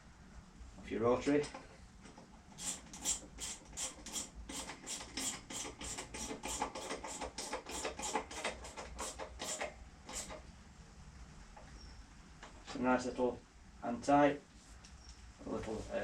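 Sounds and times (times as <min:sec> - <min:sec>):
socket ratchet clicking: 0:02.6 - 0:10.4.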